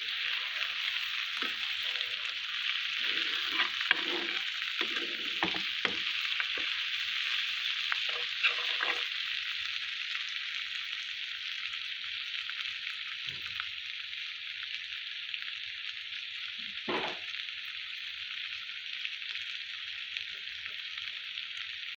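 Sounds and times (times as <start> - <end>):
okra sizzling in oil: 0.0 - 22.0.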